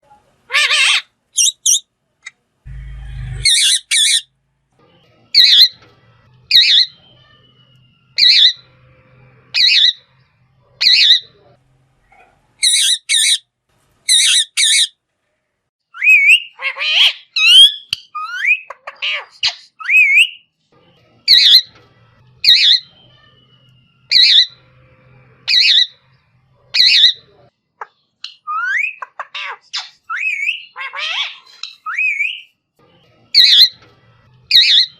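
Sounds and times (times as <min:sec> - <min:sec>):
parrot squawking: 0:00.5 - 0:01.8, 0:02.7 - 0:04.3, 0:05.4 - 0:05.8, 0:06.5 - 0:07.2, 0:08.2 - 0:08.8, 0:09.5 - 0:11.4, 0:12.0 - 0:13.4, 0:14.1 - 0:15.0, 0:15.9 - 0:20.4, 0:21.3 - 0:21.7, 0:22.4 - 0:23.0, 0:24.1 - 0:24.7, 0:25.4 - 0:26.1, 0:26.7 - 0:27.3, 0:28.3 - 0:32.4, 0:33.4 - 0:33.8, 0:34.5 - 0:34.9
parrot whistled calls: 0:08.2 - 0:08.7, 0:15.9 - 0:18.7, 0:24.1 - 0:24.6.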